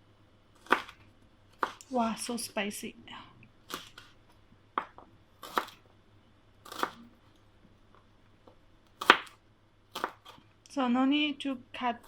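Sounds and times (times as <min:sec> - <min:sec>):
knife cutting vegetables on board: 0:00.6 - 0:02.0, 0:03.6 - 0:04.2, 0:04.8 - 0:05.8, 0:06.6 - 0:07.1, 0:08.9 - 0:10.4.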